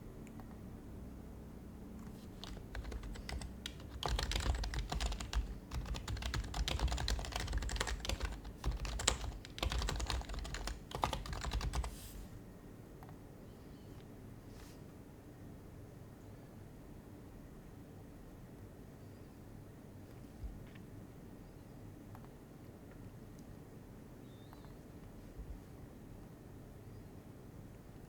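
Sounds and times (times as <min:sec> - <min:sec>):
soft keyboard typing: 0:02.0 - 0:12.1.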